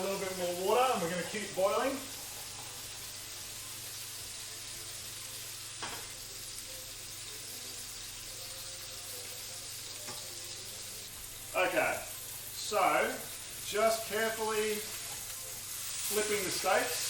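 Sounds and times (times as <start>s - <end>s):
steaks sizzling in a frying pan: 0.0s - 17.0s.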